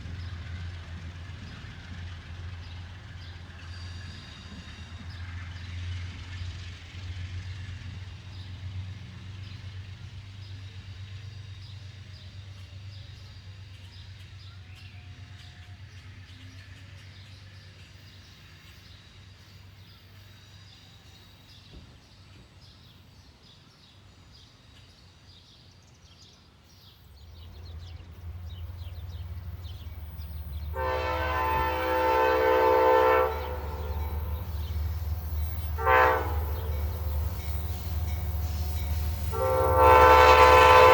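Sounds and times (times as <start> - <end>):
train rumble: 0.0 - 25.4, 26.4 - 40.9
train diesel engine: 0.0 - 40.9
locomotive horn blast: 29.1 - 40.9.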